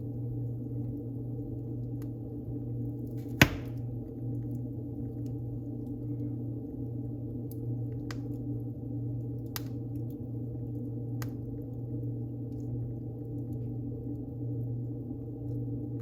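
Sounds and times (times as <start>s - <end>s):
wood fire crackling: 0.0s - 16.0s
sharp pops of fire: 3.2s - 3.9s.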